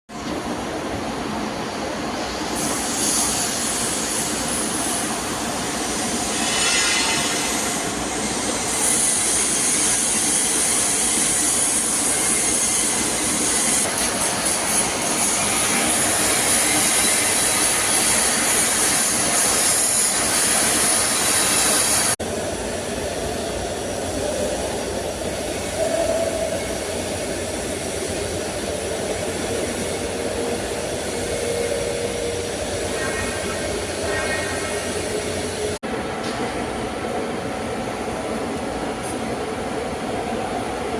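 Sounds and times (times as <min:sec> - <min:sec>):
welding hiss: 0:02.6 - 0:22.2.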